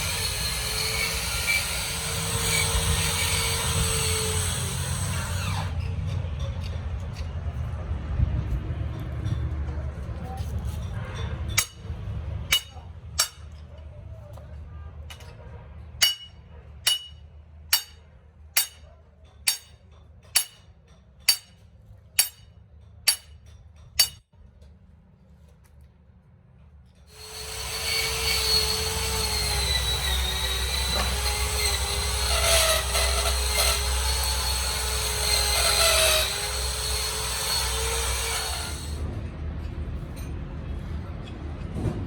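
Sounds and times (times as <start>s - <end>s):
power tool whining: 0.0s - 5.8s, 27.1s - 39.0s.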